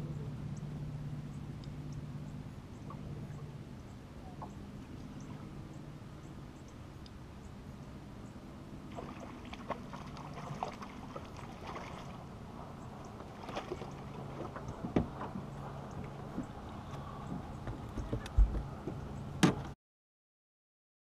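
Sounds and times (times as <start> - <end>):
steady low hum: 0.0 - 19.8
fish splashing in water: 8.8 - 12.4, 13.0 - 15.1
sharp clicks and knocks: 17.3 - 19.7.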